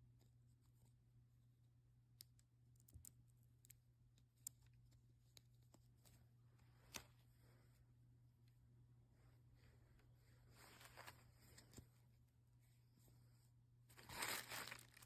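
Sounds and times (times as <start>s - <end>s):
faint clicks and taps: 2.1s - 7.2s.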